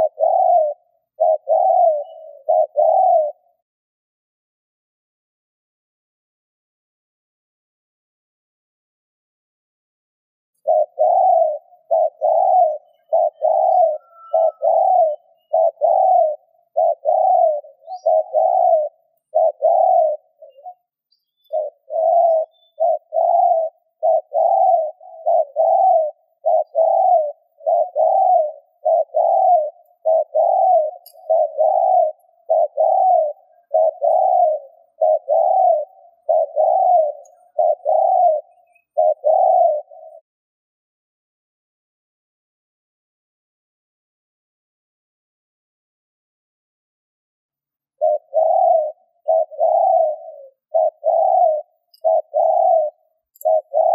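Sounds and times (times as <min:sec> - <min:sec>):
dove cooing: 0:00.0 - 0:03.6, 0:10.6 - 0:40.2, 0:47.8 - 0:53.9.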